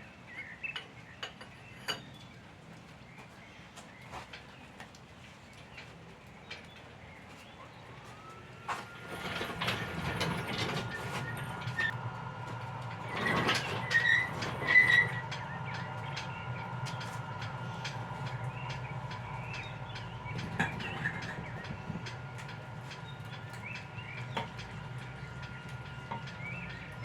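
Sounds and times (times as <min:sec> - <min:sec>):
motor humming and whining: 0:07.8 - 0:27.0.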